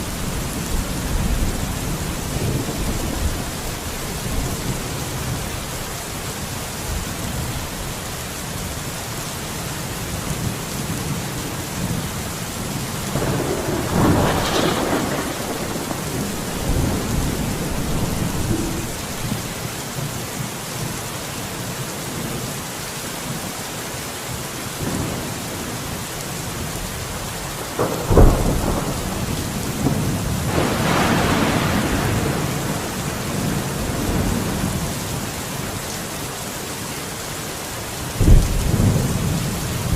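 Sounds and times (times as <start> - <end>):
heavy rain: 0.0 - 39.9
rolling thunder: 13.0 - 19.7, 27.6 - 35.0, 38.2 - 39.9
sharp thunder crack: 13.2 - 19.6, 27.8 - 33.5.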